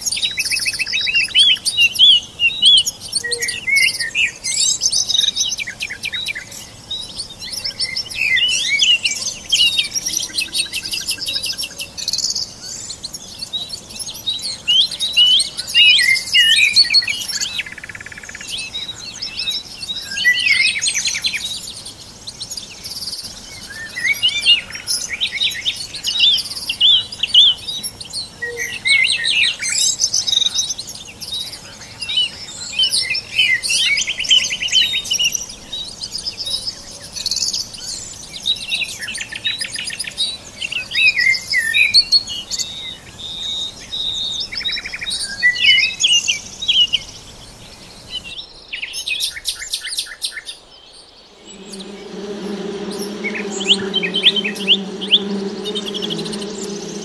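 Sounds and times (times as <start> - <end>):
songbirds chirping and singing: 51.2 - 57.0.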